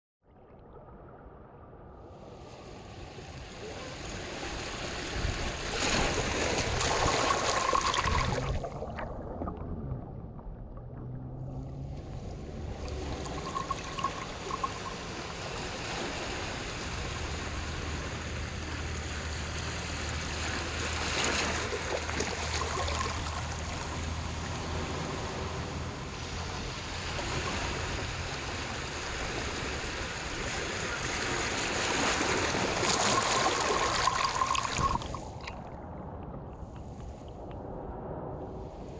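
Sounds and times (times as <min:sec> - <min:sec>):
water surging and washing: 0:02.2 - 0:37.8.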